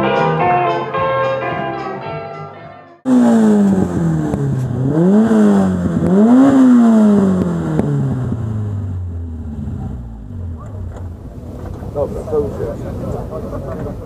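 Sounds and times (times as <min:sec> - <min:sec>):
car engine revving: 0:03.0 - 0:14.0.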